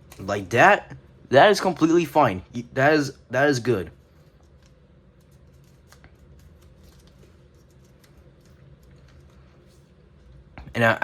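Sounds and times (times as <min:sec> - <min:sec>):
low steady hum: 0:00.0 - 0:11.0
paper crinkling and folding: 0:04.0 - 0:09.9.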